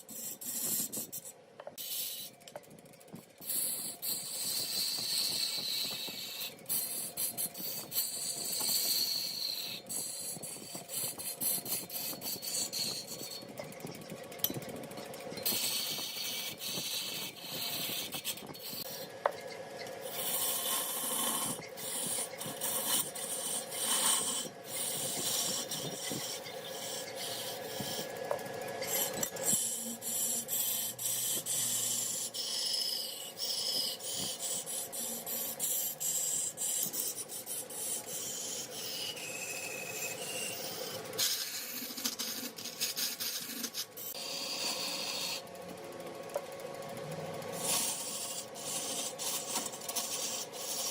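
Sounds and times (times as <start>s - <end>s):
lathe tool scraping wood: 0.0s - 45.5s, 47.4s - 50.9s
machine hum: 1.2s - 50.9s.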